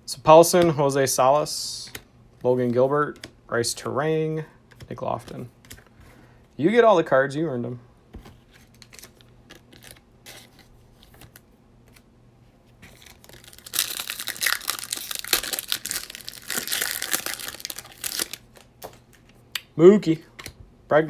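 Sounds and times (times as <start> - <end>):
foil wrapper tearing and crinkling: 12.9 - 18.9.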